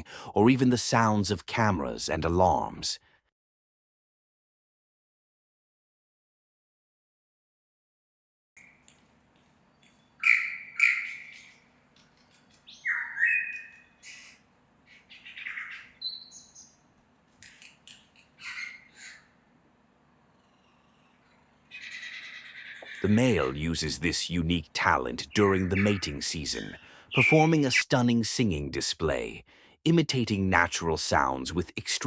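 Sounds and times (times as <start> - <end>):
lyrebird singing varied calls: 9.7 - 16.8, 17.4 - 19.4, 20.5 - 27.7.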